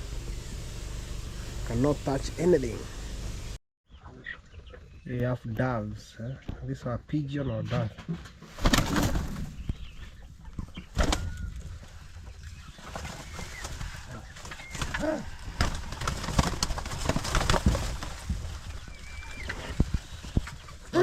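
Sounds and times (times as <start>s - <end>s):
birds calling softly: 3.9s - 16.0s, 18.5s - 21.0s
rustling: 8.1s - 21.0s.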